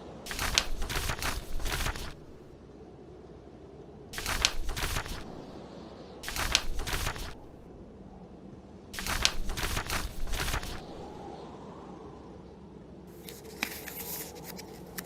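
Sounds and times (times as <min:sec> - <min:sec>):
wind rumble: 0:00.0 - 0:13.3
book pages turning: 0:00.3 - 0:02.5, 0:04.2 - 0:05.5, 0:06.2 - 0:07.6, 0:09.0 - 0:11.2, 0:13.2 - 0:15.0.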